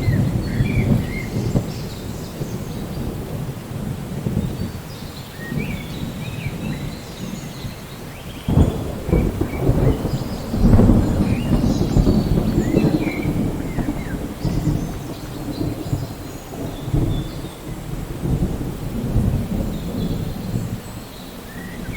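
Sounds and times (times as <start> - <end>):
sudden thunderclap: 0.0 - 4.7, 8.4 - 20.8
rain falling: 0.0 - 21.9
thunder rumbling: 0.0 - 21.9.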